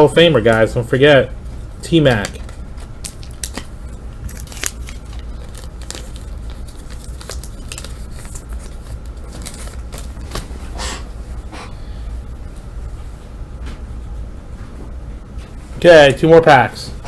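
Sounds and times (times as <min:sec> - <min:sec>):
steady low hum: 0:00.0 - 0:17.0
foil wrappers rustling: 0:01.9 - 0:10.6.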